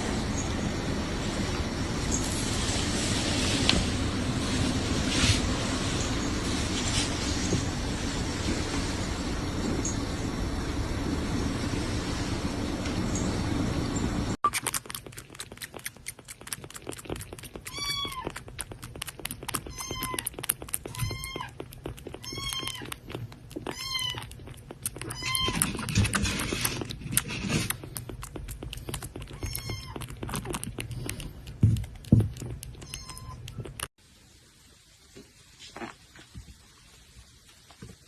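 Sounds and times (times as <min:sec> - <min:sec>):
steady rumble: 0:00.0 - 0:14.4
cat meowing: 0:17.6 - 0:18.4, 0:19.6 - 0:21.6, 0:22.2 - 0:23.0, 0:23.6 - 0:24.3, 0:25.0 - 0:25.8, 0:29.3 - 0:30.1, 0:32.8 - 0:33.7.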